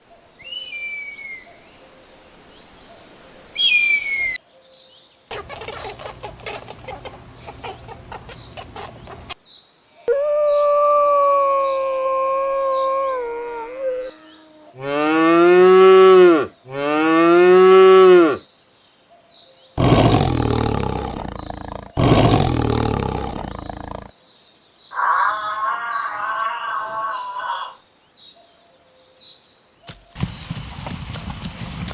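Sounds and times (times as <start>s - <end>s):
farm animal calls: 5.3s - 9.4s, 19.8s - 24.1s, 24.9s - 27.8s.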